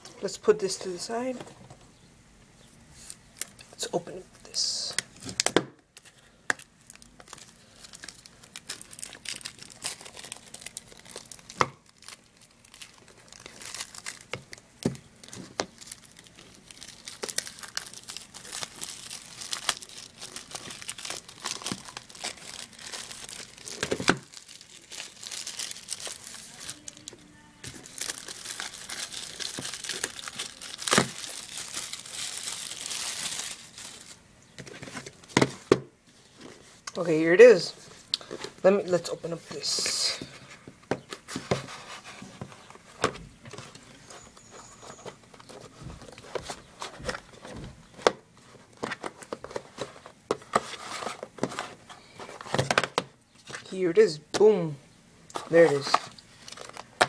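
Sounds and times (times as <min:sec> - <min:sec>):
packaging crinkling and tearing: 0:04.9 - 0:35.4, 0:55.4 - 0:57.0.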